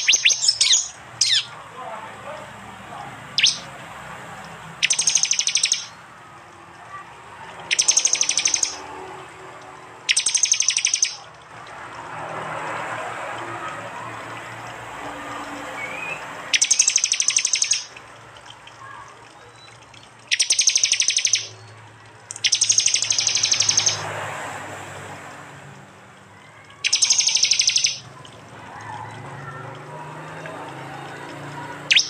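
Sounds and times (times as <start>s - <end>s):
bird rapid high-pitched chirps: 0.0s - 1.6s, 3.1s - 3.7s, 4.7s - 6.0s, 7.6s - 8.9s, 10.0s - 11.3s, 15.3s - 18.0s, 18.8s - 24.0s, 26.5s - 28.2s, 31.3s - 32.0s.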